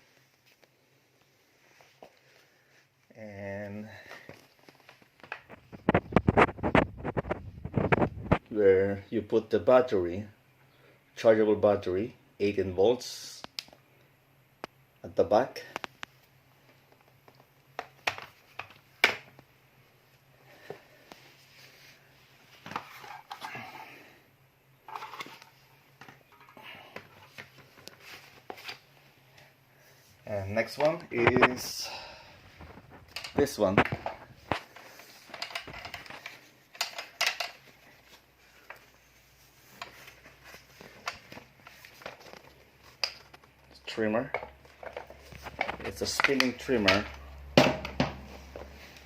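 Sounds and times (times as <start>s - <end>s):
plastic tool parts clicking: 35.3s - 37.6s.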